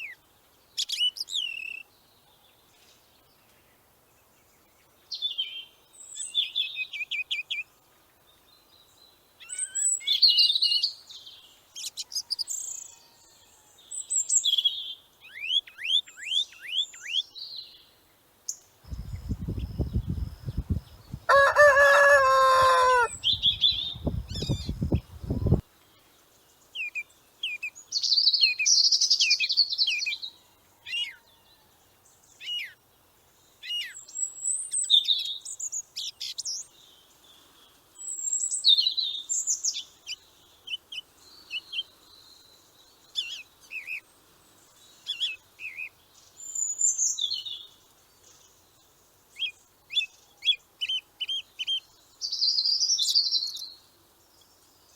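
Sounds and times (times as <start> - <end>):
small birds chirping: 13.9 - 30.3, 32.2 - 54.9
lower pitched bird call: 18.9 - 25.6.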